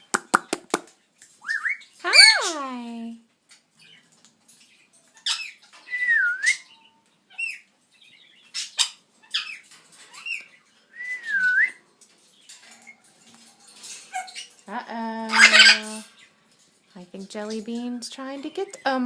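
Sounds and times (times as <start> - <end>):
parrot chirps: 5.1 - 7.7, 8.4 - 10.5, 14.1 - 14.6, 15.3 - 16.1
parrot whistling: 5.3 - 6.7, 10.9 - 11.8.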